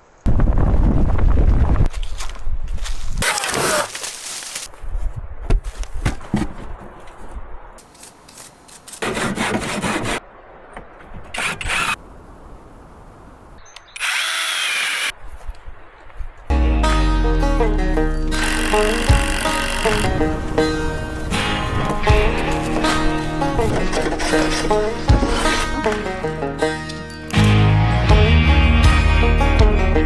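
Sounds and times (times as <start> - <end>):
power tool drilling and sawing wood: 11.4 - 12.0, 14.0 - 15.1, 18.3 - 27.9.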